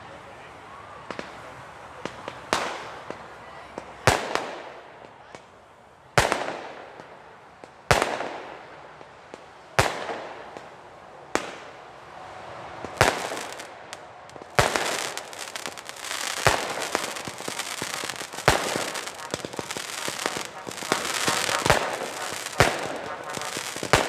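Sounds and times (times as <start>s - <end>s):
firework bangs with hiss: 1.1s - 5.2s, 6.2s - 11.8s, 12.7s - 24.0s
dense firework crackling: 12.2s - 24.0s.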